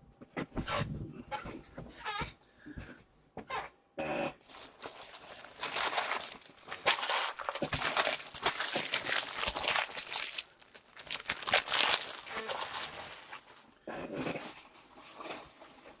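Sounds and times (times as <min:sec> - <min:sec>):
plastic wrappers crinkling: 0:04.4 - 0:13.6.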